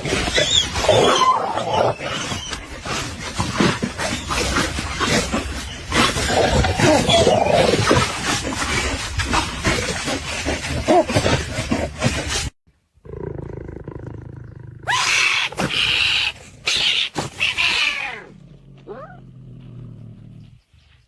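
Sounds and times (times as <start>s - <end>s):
animal harsh cries: 14.8s - 18.3s.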